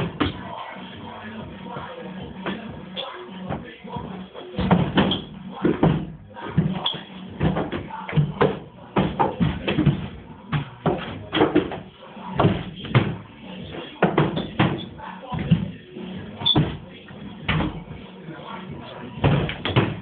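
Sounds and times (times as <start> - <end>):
irregular knocks and thumps: 4.6 - 6.8, 7.4 - 15.8, 16.4 - 16.8, 19.2 - 20.0.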